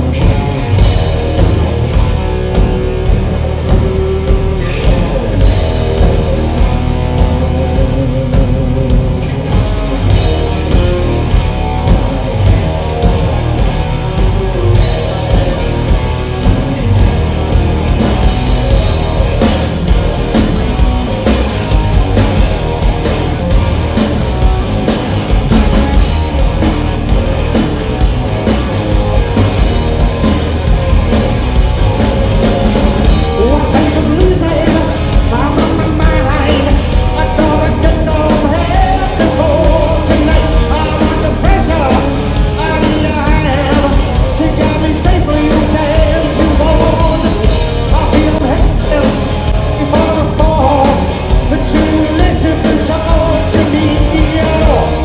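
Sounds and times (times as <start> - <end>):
live rock band playing: 0.0 - 55.0
person singing and shouting: 33.2 - 55.0.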